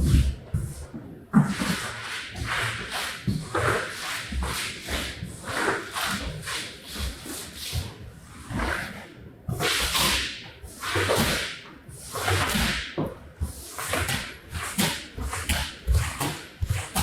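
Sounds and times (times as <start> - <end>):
cleaning tool scrubbing wet rug: 1.5 - 7.8, 13.5 - 17.0.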